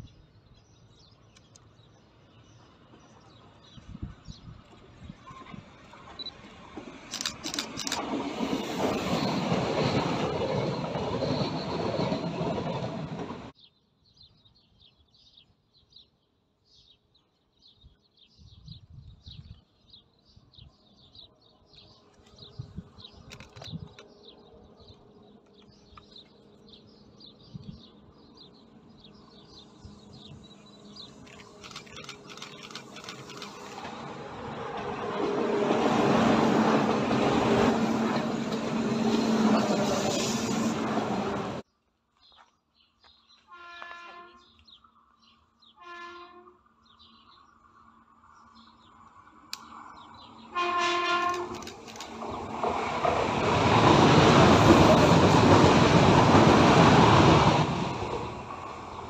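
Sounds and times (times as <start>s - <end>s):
approaching train rumble: 2.0s - 13.6s, 22.4s - 41.7s, 46.8s - 59.0s
train rushing past: 4.6s - 13.6s, 28.6s - 41.6s, 50.3s - 59.0s
birds chirping: 13.6s - 33.9s.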